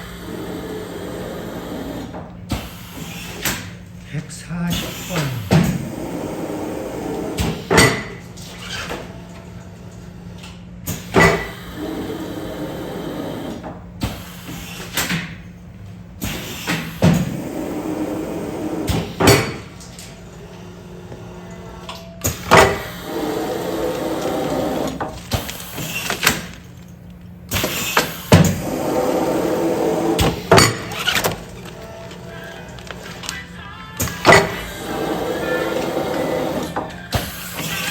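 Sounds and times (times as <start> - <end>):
machine hum: 0.0 - 10.5, 17.1 - 37.9
sealing machine clunks: 34.0 - 34.8.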